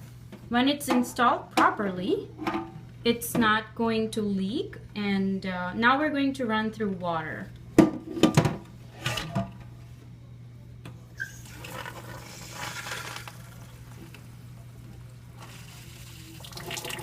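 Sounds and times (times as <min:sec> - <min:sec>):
water running from dispenser: 0:15.4 - 0:17.0.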